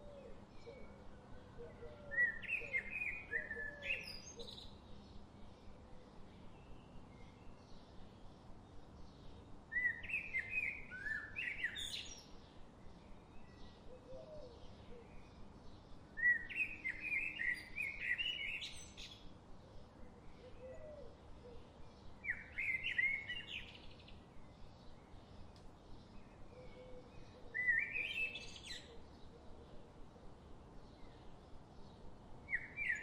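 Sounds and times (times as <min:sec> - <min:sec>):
birds soft chirps: 0:00.0 - 0:33.0.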